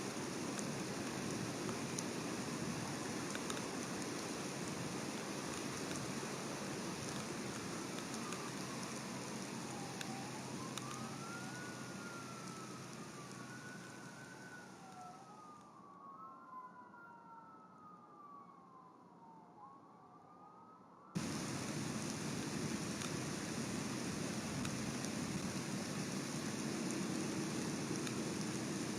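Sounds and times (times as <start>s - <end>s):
steady rain hiss: 0.0s - 15.4s, 21.2s - 28.9s
distant siren wailing: 0.1s - 28.9s.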